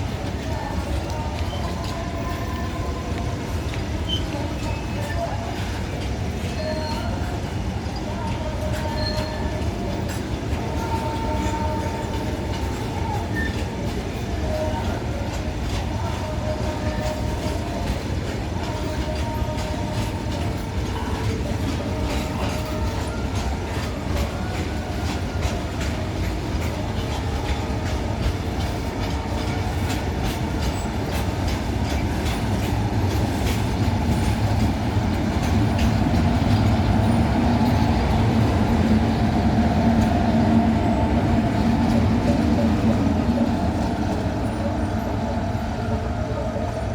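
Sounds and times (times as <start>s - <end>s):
train wheels clicking over rail joints: 8.3s - 45.2s.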